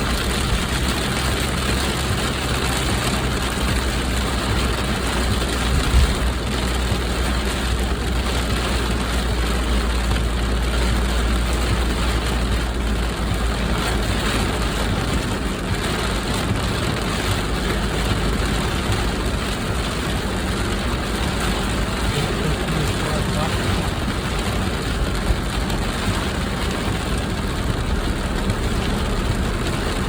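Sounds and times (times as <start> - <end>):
car engine rumble: 0.0 - 30.0
heavy rain on a car: 0.0 - 30.0.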